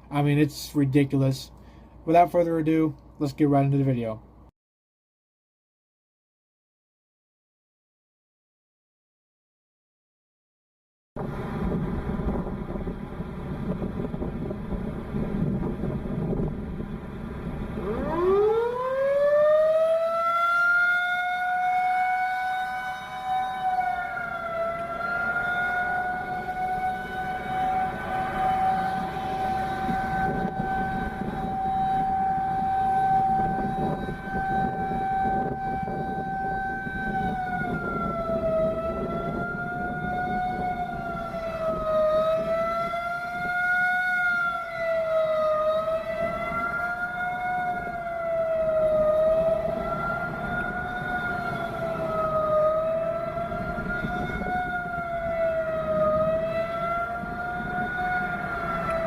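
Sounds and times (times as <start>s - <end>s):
low background rumble: 11.2s - 17.9s
warning siren wavering: 11.2s - 59.0s.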